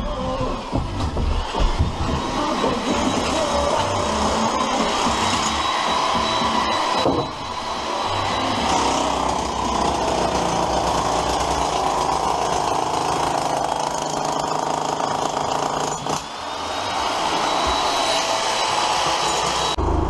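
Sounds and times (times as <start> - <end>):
demolition hammer rapid blows: 0.6 - 16.4.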